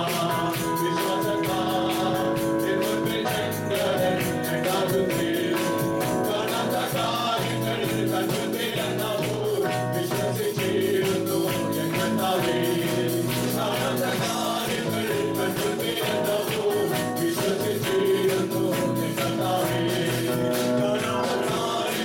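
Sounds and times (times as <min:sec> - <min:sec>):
band playing: 0:00.0 - 0:22.0
fast percussion beat: 0:00.0 - 0:22.0
people singing: 0:00.0 - 0:22.0.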